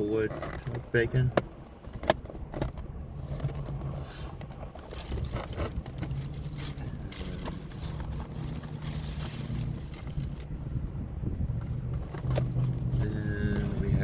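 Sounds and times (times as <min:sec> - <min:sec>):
plastic containers clicking and scraping: 0:00.0 - 0:10.5
car idling: 0:00.0 - 0:14.0.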